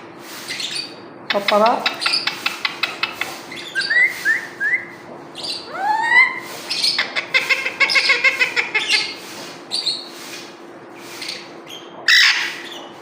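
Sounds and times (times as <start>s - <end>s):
parrot chirps and whistle: 0.5s - 10.5s, 11.2s - 12.9s
parrot clicking: 1.3s - 3.3s.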